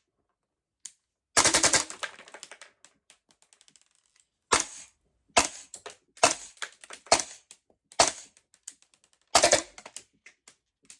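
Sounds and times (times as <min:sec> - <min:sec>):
airsoft rifle shots: 0:08.0 - 0:08.3, 0:09.4 - 0:09.8.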